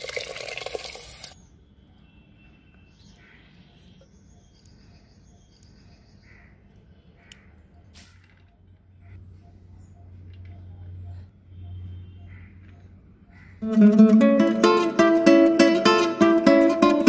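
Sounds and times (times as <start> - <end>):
bird calls: 2.6 - 13.9.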